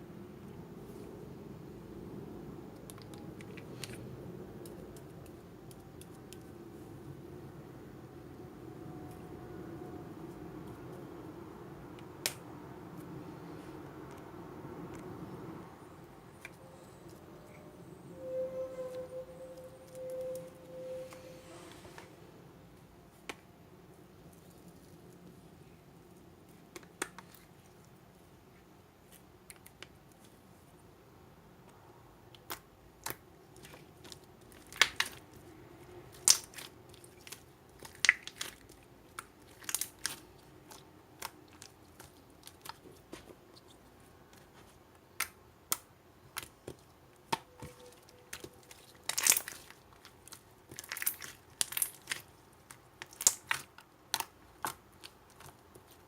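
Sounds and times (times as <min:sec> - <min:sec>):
hands squeezing slime: 0:36.1 - 0:43.8, 0:47.6 - 0:56.0.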